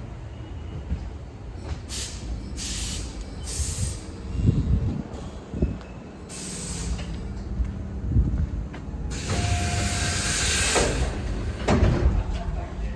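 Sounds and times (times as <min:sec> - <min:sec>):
train releasing air hisses: 0:01.8 - 0:04.6, 0:06.3 - 0:07.3, 0:09.1 - 0:11.7.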